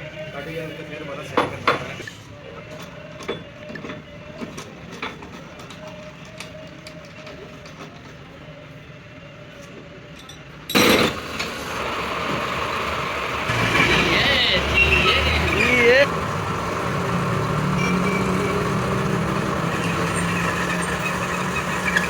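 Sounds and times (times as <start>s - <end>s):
lathe running: 11.9s - 22.0s.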